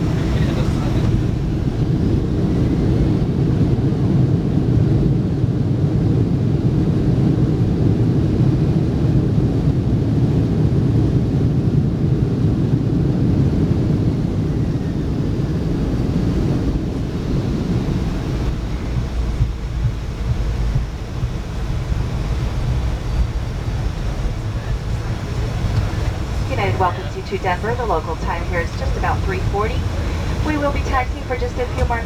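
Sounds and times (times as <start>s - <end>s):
aircraft cabin low rumble: 0.0s - 32.0s.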